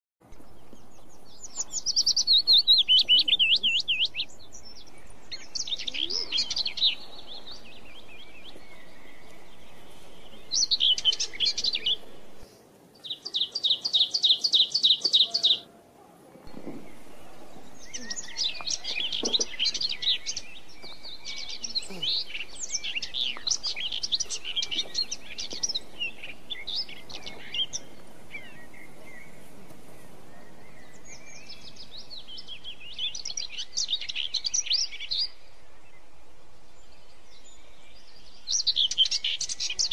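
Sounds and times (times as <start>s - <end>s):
birds singing: 0.2s - 39.9s
steady background hiss: 0.2s - 39.9s.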